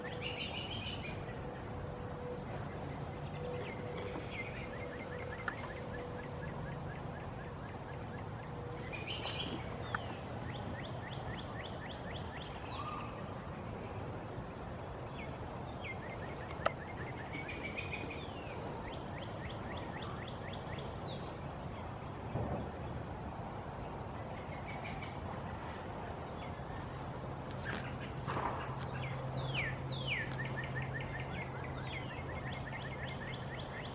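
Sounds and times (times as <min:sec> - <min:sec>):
birds calling and singing: 0:00.0 - 0:13.4, 0:15.0 - 0:21.9, 0:26.2 - 0:33.9.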